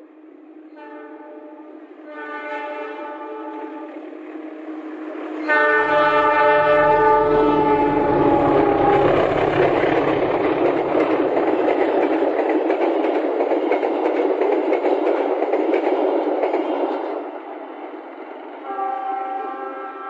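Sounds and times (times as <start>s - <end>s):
passenger train passing at speed: 0.0s - 20.0s
steady multi-pitch tone: 5.8s - 10.9s.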